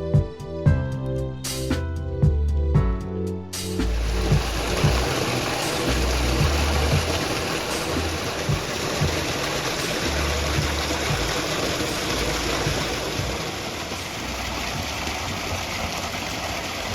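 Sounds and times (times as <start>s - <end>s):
soft background music: 0.0s - 15.8s
rushing water: 3.6s - 16.9s.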